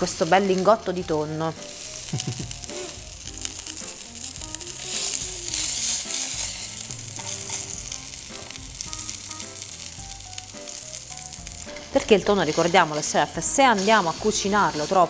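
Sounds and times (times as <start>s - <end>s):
fish searing in hot oil: 0.0s - 15.0s.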